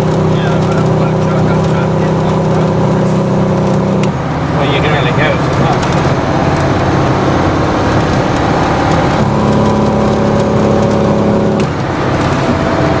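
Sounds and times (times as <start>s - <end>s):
truck diesel engine running: 0.0s - 13.0s
droning tone: 3.0s - 7.6s.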